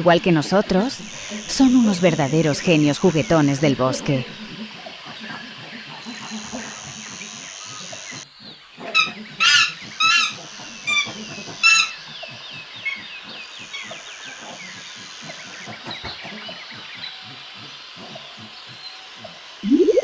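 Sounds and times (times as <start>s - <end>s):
birds chirping: 0.0s - 20.0s
insect buzz: 0.0s - 20.0s
chimpanzee hoots and screams: 0.5s - 20.0s.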